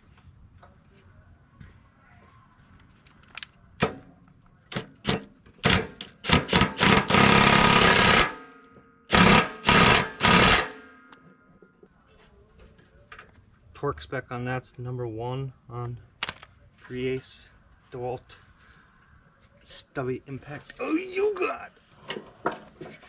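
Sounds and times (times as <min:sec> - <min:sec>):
impact wrench hammering: 0:04.7 - 0:11.4.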